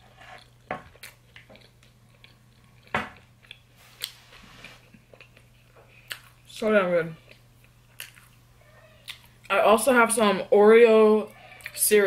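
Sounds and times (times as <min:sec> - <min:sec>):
chewing with mouth smacks: 0:00.4 - 0:04.2, 0:04.8 - 0:06.5, 0:07.2 - 0:08.4.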